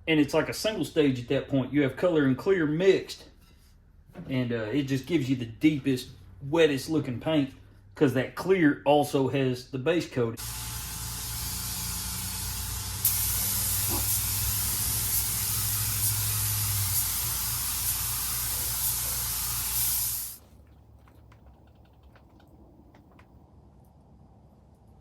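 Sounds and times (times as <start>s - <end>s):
paint spray gun hissing: 10.4s - 20.4s.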